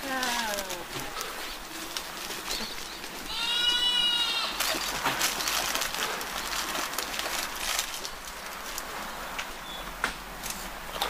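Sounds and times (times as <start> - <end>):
animals scuffling and clattering: 0.0 - 11.0
goat bleating: 3.2 - 4.9.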